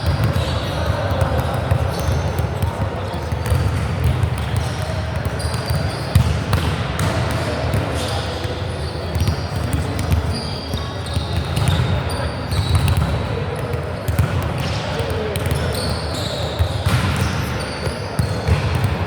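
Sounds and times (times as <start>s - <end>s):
crowd and player chatter: 0.0s - 19.0s
sneakers squeaking on court: 0.0s - 19.0s.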